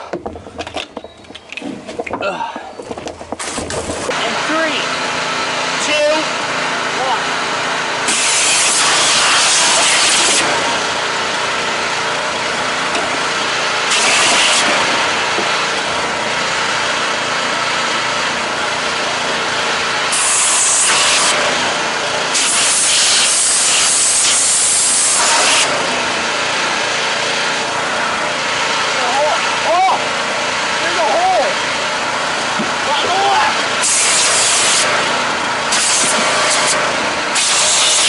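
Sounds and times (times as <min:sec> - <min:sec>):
pressure washer engine running: 0:03.4 - 0:38.0
high-pressure spray hissing: 0:08.1 - 0:10.6, 0:13.9 - 0:15.0, 0:20.1 - 0:21.6, 0:22.3 - 0:25.8, 0:33.8 - 0:35.0, 0:35.7 - 0:38.0.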